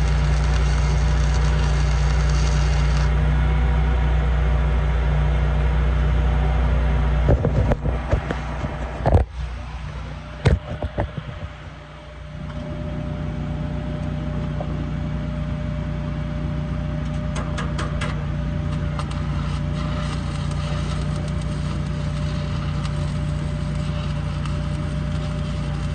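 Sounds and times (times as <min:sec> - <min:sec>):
welding crackle: 0:00.0 - 0:03.2, 0:17.1 - 0:25.9
welding machine drone: 0:00.0 - 0:25.9.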